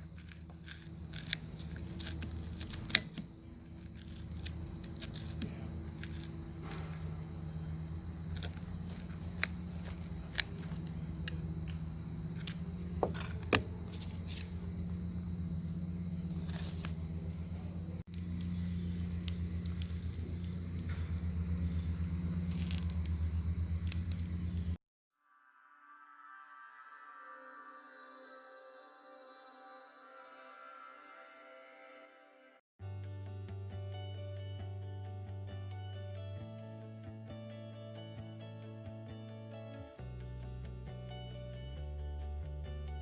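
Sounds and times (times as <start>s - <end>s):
low steady rumble: 0.0s - 24.8s.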